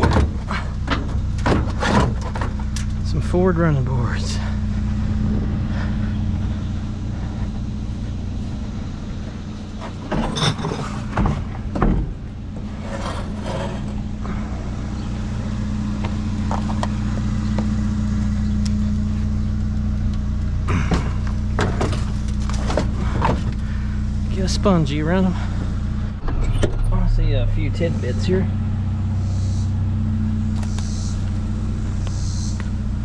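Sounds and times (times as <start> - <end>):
vehicle engine idling: 0.0 - 33.0
sharp knocks and clatters: 9.8 - 13.9.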